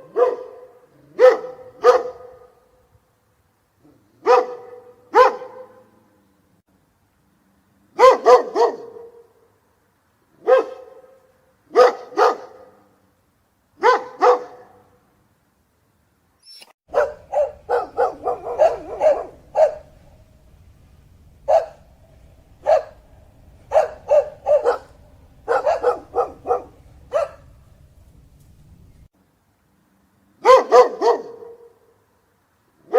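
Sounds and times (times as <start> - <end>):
dog barking: 0.0 - 2.6, 4.2 - 6.0, 8.0 - 9.3, 10.4 - 12.9, 13.8 - 14.9, 16.9 - 20.3, 21.4 - 27.8, 30.4 - 31.9
faint low hum: 16.9 - 30.4.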